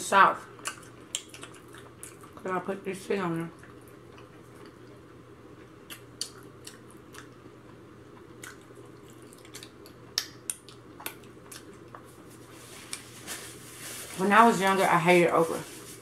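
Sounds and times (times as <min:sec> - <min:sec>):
close-miked chewing: 0:00.6 - 0:02.5, 0:03.5 - 0:13.1.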